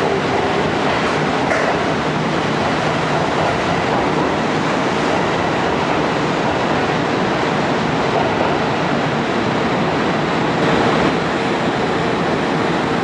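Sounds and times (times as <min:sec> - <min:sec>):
electric trains rolling: 0:00.0 - 0:13.0.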